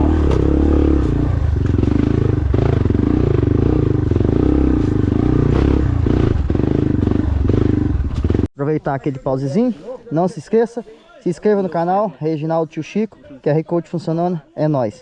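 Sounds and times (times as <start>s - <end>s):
dirt bike engine running: 0.0s - 8.5s.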